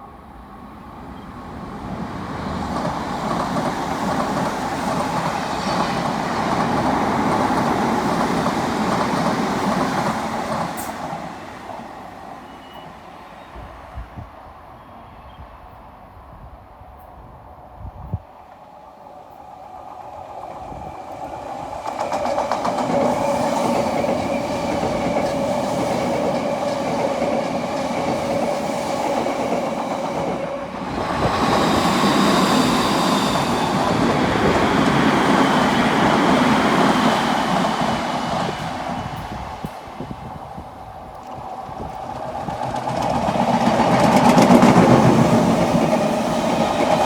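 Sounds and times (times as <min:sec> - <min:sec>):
wheels clicking over rail joints: 0:33.4 - 0:47.0.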